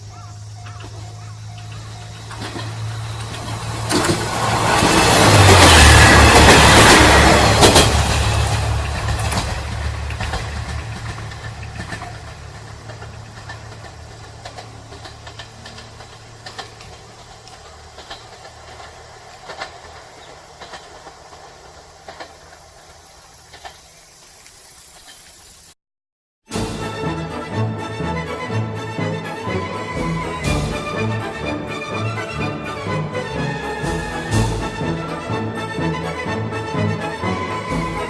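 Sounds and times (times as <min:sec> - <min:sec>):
train engine rumble: 0:00.0 - 0:25.7, 0:26.5 - 0:38.0
faint irregular clicks: 0:10.1 - 0:25.2.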